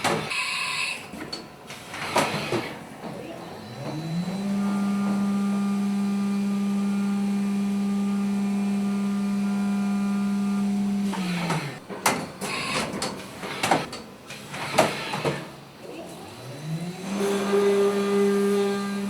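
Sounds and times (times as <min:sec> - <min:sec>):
milling machine motor whine: 0:03.6 - 0:11.8, 0:16.3 - 0:19.0.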